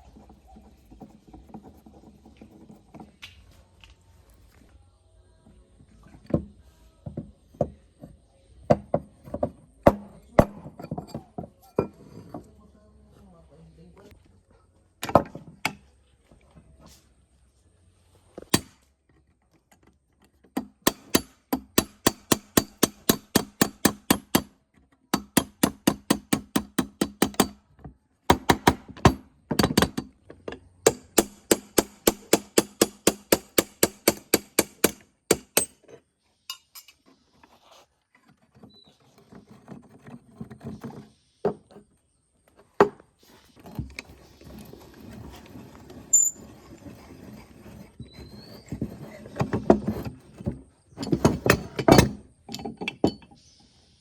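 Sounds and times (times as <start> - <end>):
scraping and handling noise: 0.0 - 4.8, 5.4 - 13.3, 35.6 - 53.6.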